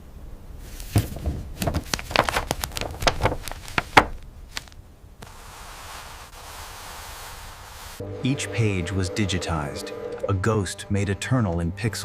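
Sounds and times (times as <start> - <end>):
steady hiss: 3.6 - 9.6.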